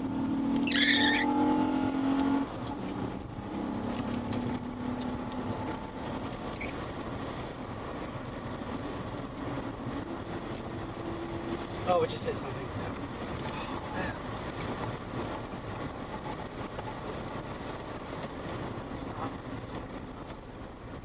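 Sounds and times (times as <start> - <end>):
continuous rushing noise: 0.0 - 21.0
vehicle engine humming: 0.0 - 21.0
high squeal: 0.5 - 1.4, 6.5 - 6.8.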